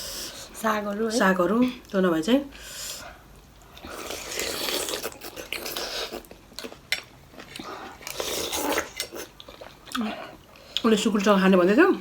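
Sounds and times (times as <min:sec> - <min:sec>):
noisy eating: 0:02.6 - 0:12.0.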